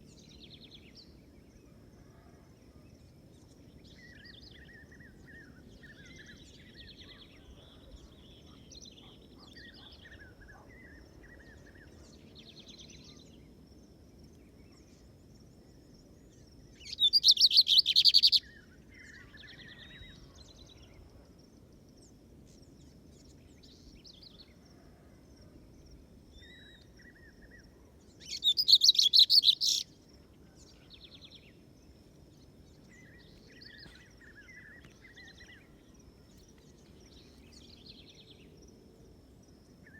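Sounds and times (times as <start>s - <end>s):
faint bird chirps and whistles: 14.6s - 21.3s, 26.3s - 31.5s
bird singing high trilled notes: 16.9s - 18.4s, 28.3s - 29.8s.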